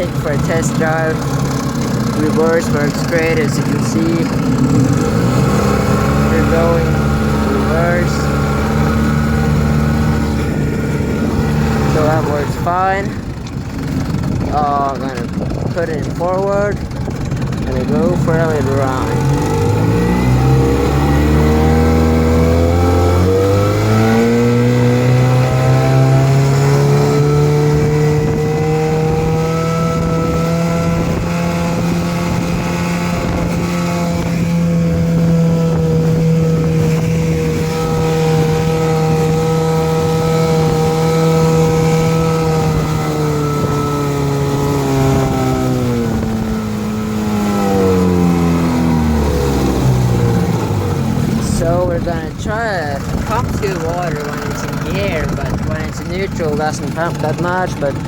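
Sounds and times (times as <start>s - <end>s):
outboard motor running: 0.0s - 58.0s.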